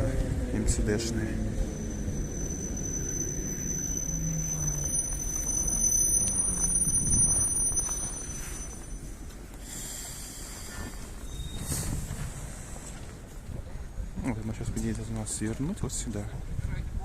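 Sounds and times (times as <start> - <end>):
electric train rumble: 0.0 - 14.2
high-pitched whine: 1.3 - 9.1.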